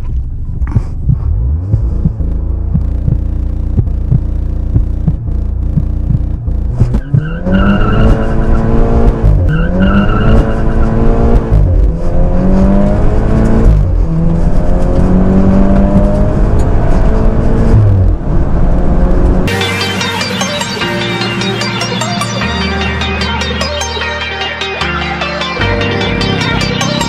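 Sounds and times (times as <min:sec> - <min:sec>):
car engine revving at full throttle: 0:00.0 - 0:19.6.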